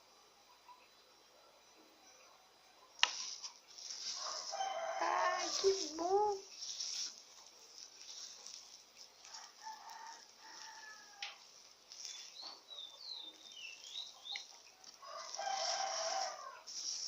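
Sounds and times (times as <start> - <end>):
rooster crowing: 4.0 - 6.4, 9.2 - 11.4, 14.8 - 17.0
high bird chirps: 12.0 - 14.6.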